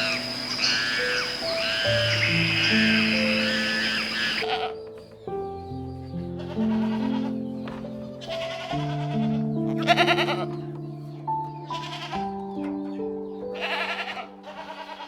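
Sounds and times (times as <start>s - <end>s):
sheep bleating: 0.0s - 4.7s, 6.4s - 7.4s, 8.2s - 10.6s, 11.7s - 12.2s, 13.6s - 15.0s
soft slow piano music: 0.0s - 15.0s.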